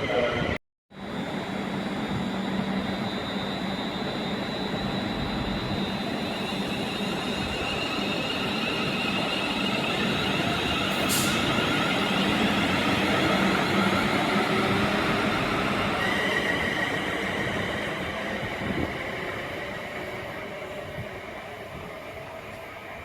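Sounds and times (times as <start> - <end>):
brief hiss: 11.0 - 11.5.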